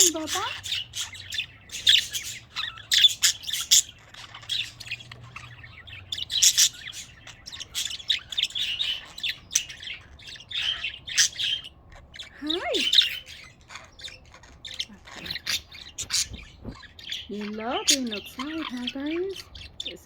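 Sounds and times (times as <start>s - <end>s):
budgies chirping and warbling: 0.0s - 20.0s.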